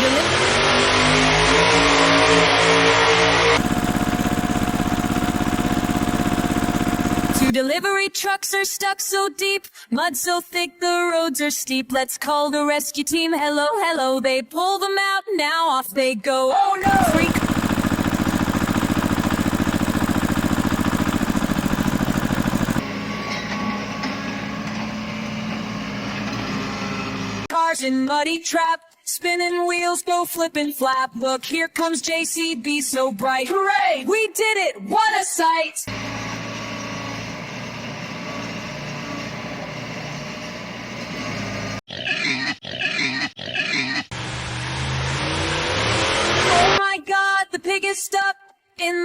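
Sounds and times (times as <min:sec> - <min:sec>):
engine chugging fast: 0:00.2 - 0:07.6, 0:16.8 - 0:23.1, 0:44.1 - 0:46.8
quieter engine running: 0:03.6 - 0:07.6, 0:16.8 - 0:23.1
pig oinking: 0:41.9 - 0:44.2.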